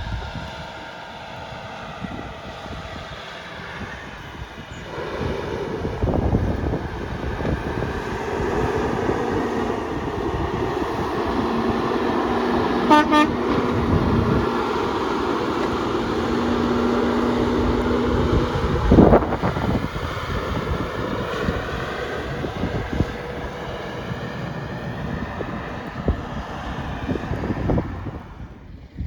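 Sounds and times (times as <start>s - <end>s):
vehicle horn toots: 12.8s - 13.8s.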